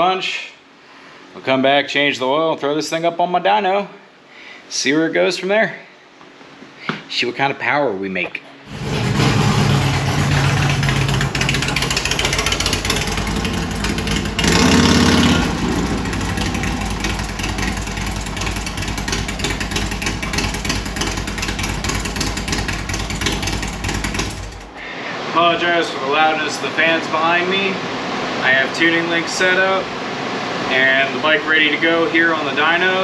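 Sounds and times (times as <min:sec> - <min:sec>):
motorcycle engine idling: 0:08.7 - 0:24.8.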